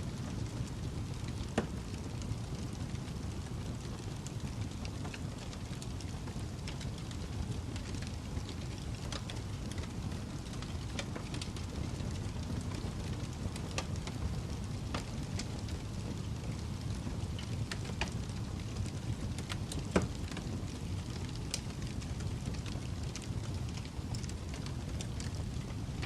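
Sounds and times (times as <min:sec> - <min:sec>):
fire crackling: 0:00.0 - 0:26.0
fire snaps and pops: 0:00.0 - 0:26.0.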